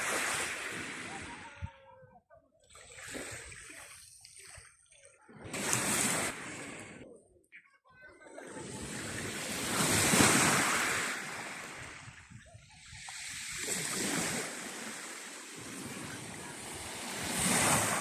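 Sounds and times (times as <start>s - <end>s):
sea waves breaking on shore: 0.0s - 1.6s, 5.3s - 7.0s, 8.4s - 18.0s.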